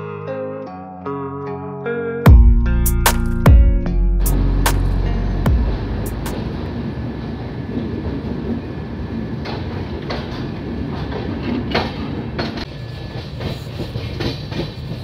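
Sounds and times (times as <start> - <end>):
train rumbling on rails: 4.3 - 15.0.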